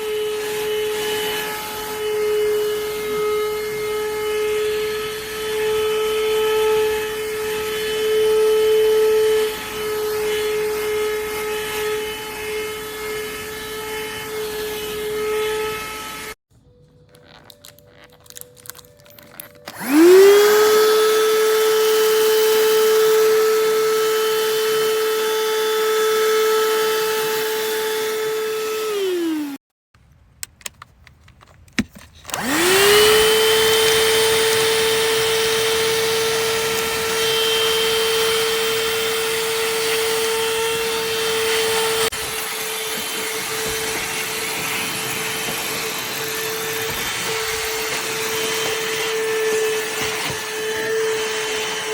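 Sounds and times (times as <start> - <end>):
handheld vacuum cleaner motor whining: 0.0 - 16.4, 17.2 - 29.6, 32.3 - 51.9.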